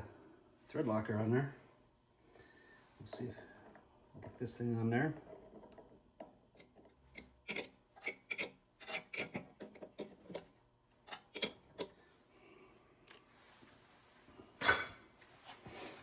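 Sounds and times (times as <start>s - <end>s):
hose fitting clicks and scrapes: 6.6s - 10.5s.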